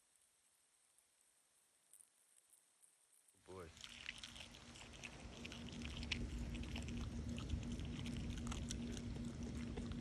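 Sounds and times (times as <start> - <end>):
dog chewing: 3.6 - 10.0.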